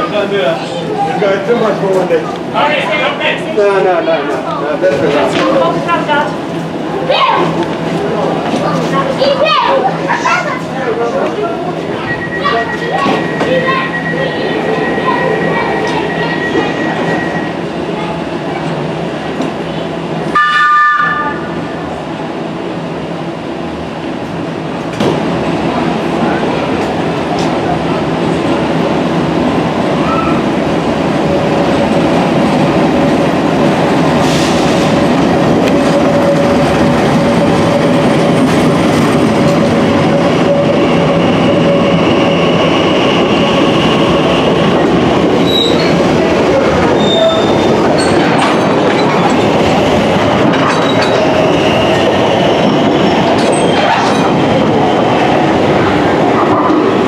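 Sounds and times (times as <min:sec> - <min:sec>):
rumble of wheels on rail: 0:00.0 - 0:57.0
metallic wheel squeal: 0:45.4 - 0:46.0, 0:47.0 - 0:48.2.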